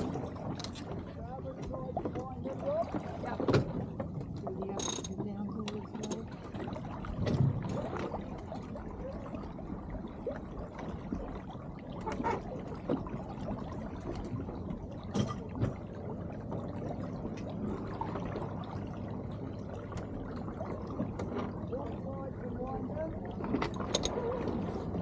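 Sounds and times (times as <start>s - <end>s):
water splashing along hull: 0.0s - 25.0s.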